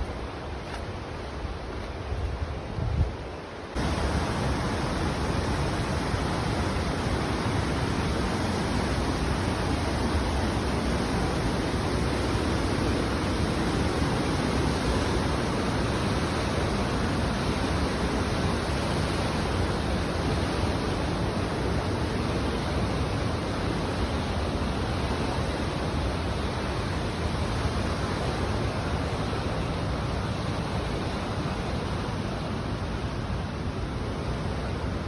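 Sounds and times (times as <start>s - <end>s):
waterfall rushing: 3.8s - 32.8s.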